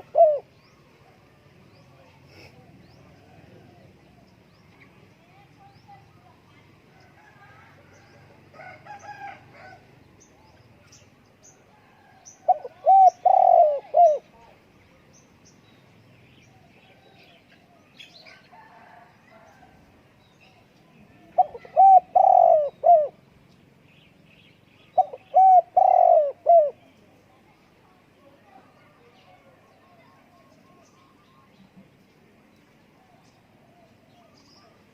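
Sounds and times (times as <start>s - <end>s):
dove cooing: 0.0s - 0.6s, 12.4s - 14.5s, 21.2s - 23.2s, 25.0s - 26.9s
small birds chirping: 0.0s - 8.3s, 8.9s - 18.5s, 19.3s - 34.9s.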